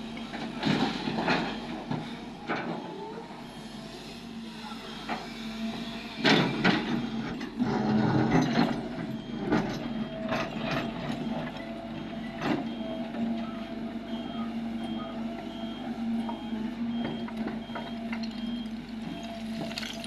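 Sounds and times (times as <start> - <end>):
excavator engine hum: 0.0 - 20.0
reversing alarm beeping: 0.0 - 20.0.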